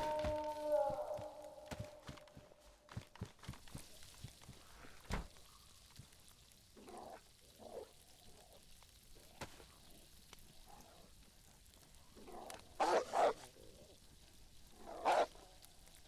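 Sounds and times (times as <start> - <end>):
wolves whining: 0.0 - 2.4.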